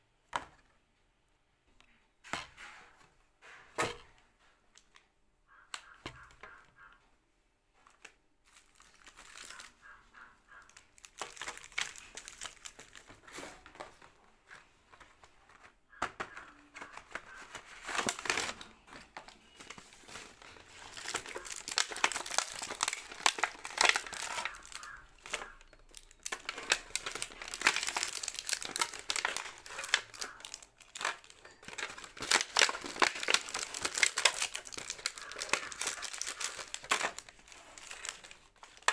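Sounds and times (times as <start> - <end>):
plastic wrappers crinkling: 7.9 - 38.9.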